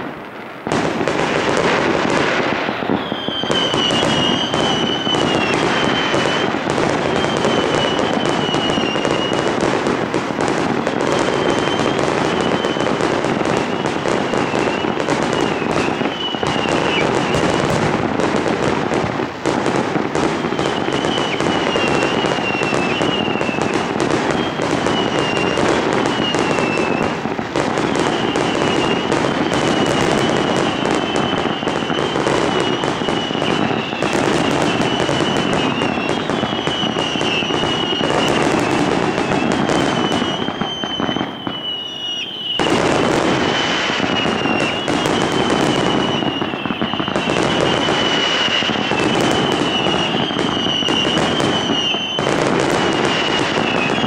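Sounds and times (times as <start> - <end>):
fireworks bangs and crackling: 0.0 - 54.0
high wavering whistle: 2.8 - 9.5, 11.2 - 17.6, 20.6 - 23.7, 24.3 - 27.1, 28.0 - 42.8, 43.7 - 52.3.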